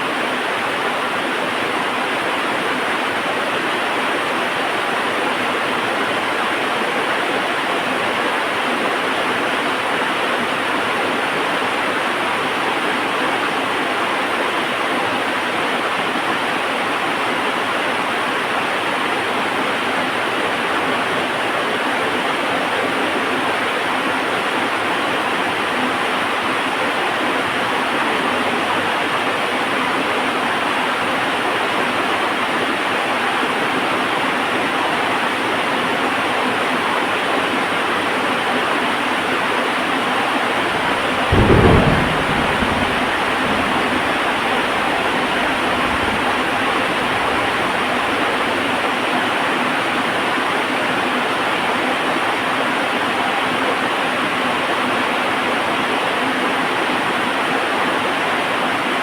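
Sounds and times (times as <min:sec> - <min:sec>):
heavy rain falling: 0:00.0 - 0:58.9
thunder clap rumbling: 0:40.0 - 0:48.7.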